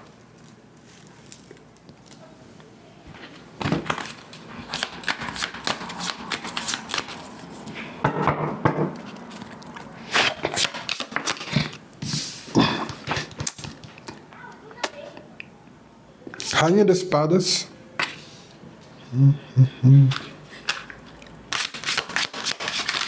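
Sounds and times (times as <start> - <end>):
cards being shuffled: 3.8 - 7.5, 10.2 - 11.8, 21.5 - 23.0.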